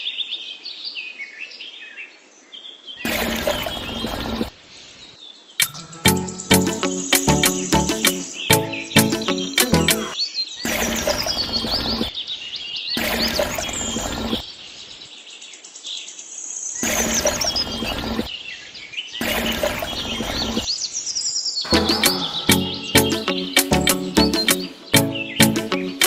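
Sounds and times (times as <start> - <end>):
birds chirping and singing: 5.6 - 10.2, 21.6 - 26.0.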